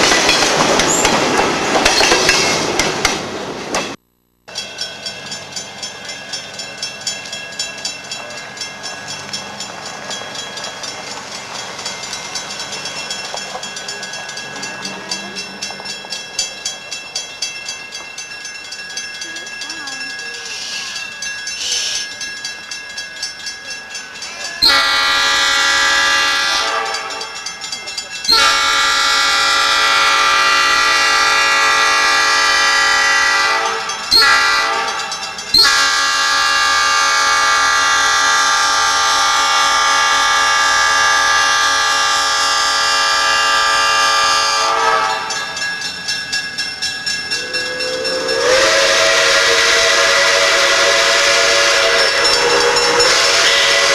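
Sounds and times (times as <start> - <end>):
locomotive horn blasts: 24.6 - 27.4, 28.3 - 45.4, 47.8 - 53.9
chime-like horn blast: 24.6 - 27.5, 28.3 - 45.6, 47.3 - 53.9.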